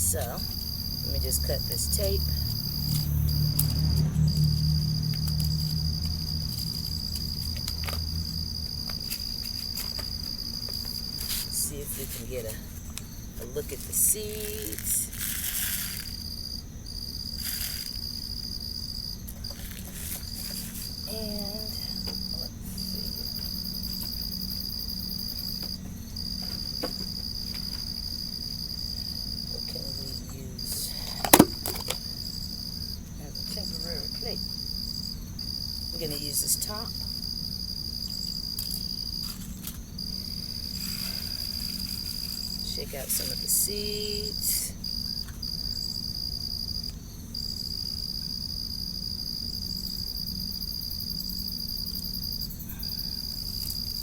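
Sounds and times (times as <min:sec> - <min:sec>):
crickets trilling: 0:00.0 - 0:54.0
low background rumble: 0:00.0 - 0:54.0.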